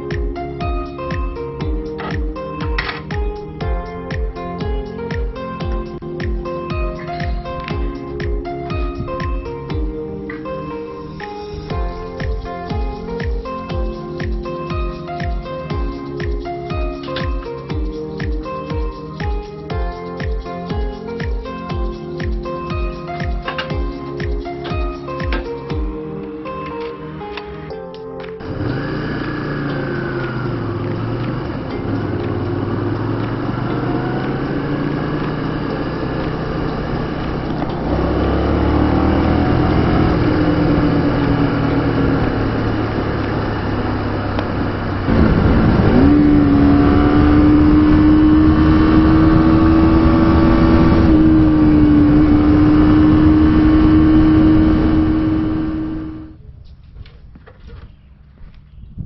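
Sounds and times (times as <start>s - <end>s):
motorcycle engine running: 11.7s - 24.4s, 28.4s - 56.4s.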